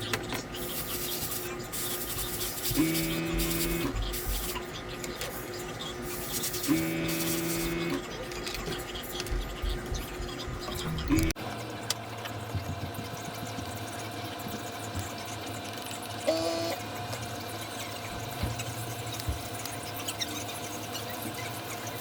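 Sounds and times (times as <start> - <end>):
air compressor humming: 0.6 - 4.6, 6.0 - 8.0, 15.9 - 20.2.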